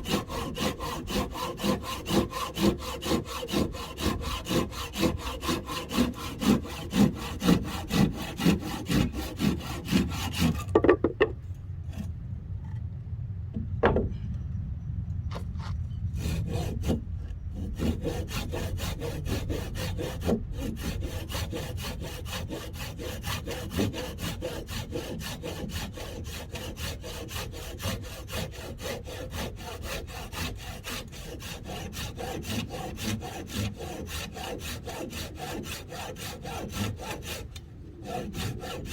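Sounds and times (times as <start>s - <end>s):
hand saw cutting wood: 0.0s - 11.1s, 15.6s - 38.9s
knocks: 10.7s - 11.4s, 13.8s - 14.2s.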